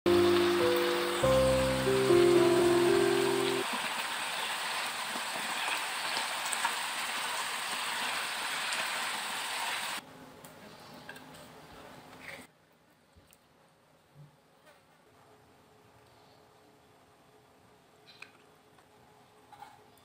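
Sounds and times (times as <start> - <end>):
vegetables sizzling in a hot pan: 0.1 - 10.0.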